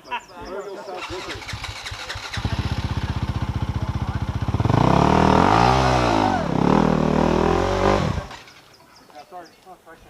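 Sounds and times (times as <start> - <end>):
motorbike engine revving: 1.0 - 8.5.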